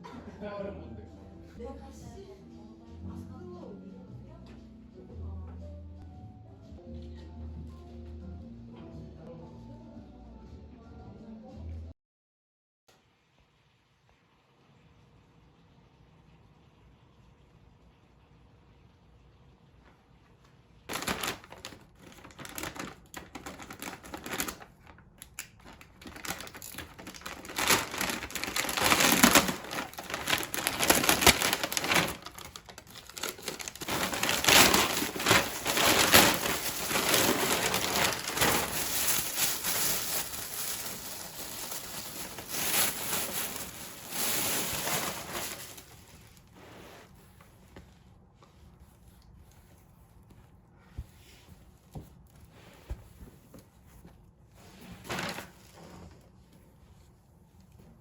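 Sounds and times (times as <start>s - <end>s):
wrapping material crinkling: 20.9s - 52.4s.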